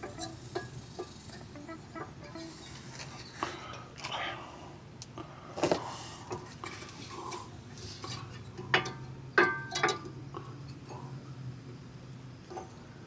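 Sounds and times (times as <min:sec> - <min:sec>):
metal tools clinking and knocking: 0:00.0 - 0:01.6, 0:08.0 - 0:10.8
low steady hum: 0:00.0 - 0:13.0.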